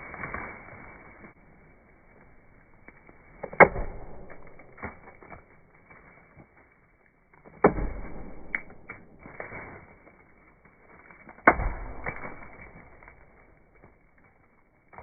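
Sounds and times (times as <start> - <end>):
axe chopping into trunk: 3.4 - 5.1, 7.5 - 9.0, 11.4 - 13.2.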